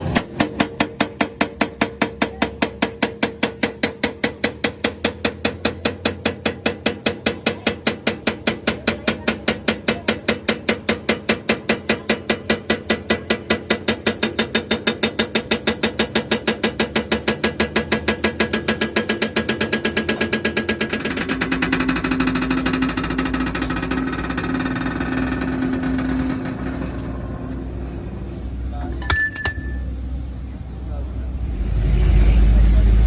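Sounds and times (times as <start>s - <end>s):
machine humming: 31.0s - 33.0s.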